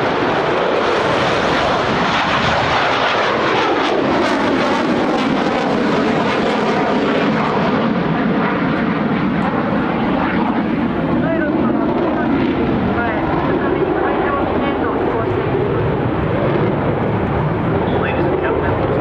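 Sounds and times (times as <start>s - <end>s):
loud jet engine roar: 0.0s - 19.0s.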